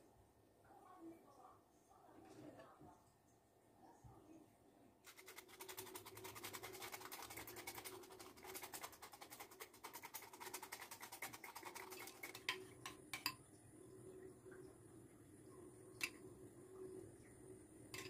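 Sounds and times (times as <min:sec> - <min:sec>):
brush scrubbing a hard surface: 0:05.1 - 0:12.6.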